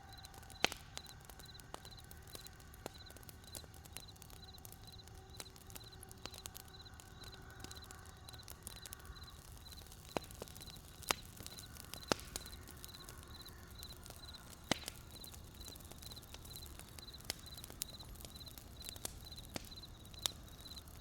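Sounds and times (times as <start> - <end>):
wood fire crackling: 0.0 - 21.0
crickets chirping: 2.9 - 5.0, 5.8 - 14.4, 15.0 - 21.0.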